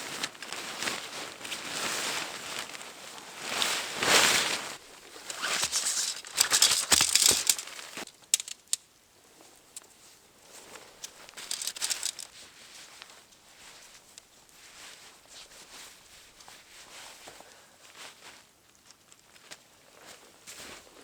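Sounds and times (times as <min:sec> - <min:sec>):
tent fabric rustling: 0:00.0 - 0:08.1, 0:11.2 - 0:17.2
sharp clicks: 0:05.3 - 0:08.8, 0:11.4 - 0:12.3.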